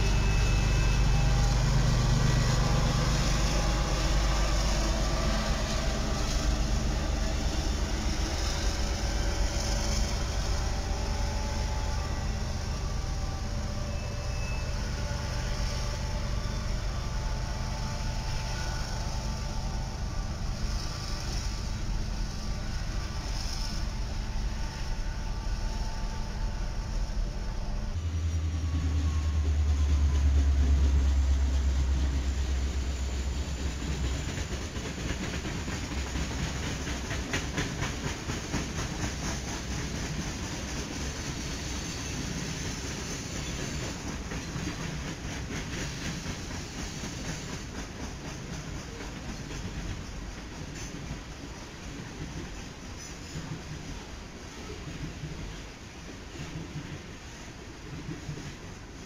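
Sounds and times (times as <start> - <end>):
freight cars rumbling past: 0.0 - 36.1
diesel locomotive engine drone: 0.0 - 59.0.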